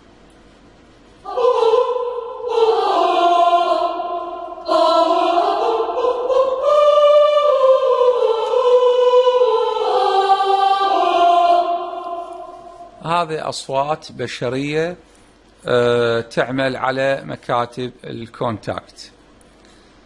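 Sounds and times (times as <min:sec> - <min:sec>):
choir singing aah chords: 0:01.2 - 0:13.5.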